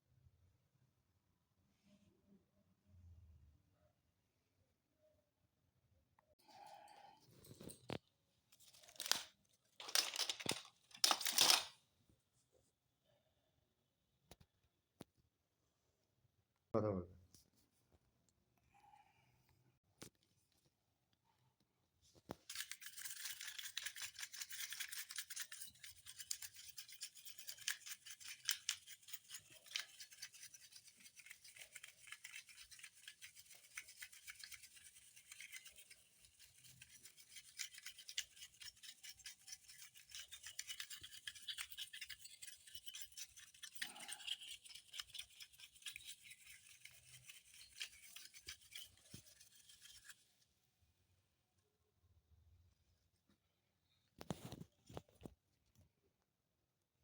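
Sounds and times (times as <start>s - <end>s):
brush scrubbing a hard surface: 22.4s - 50.4s.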